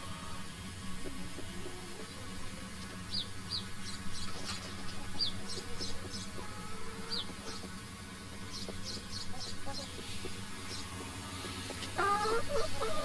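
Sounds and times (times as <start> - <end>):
low steady hum: 0.0 - 13.0
birds chirping: 1.4 - 13.0.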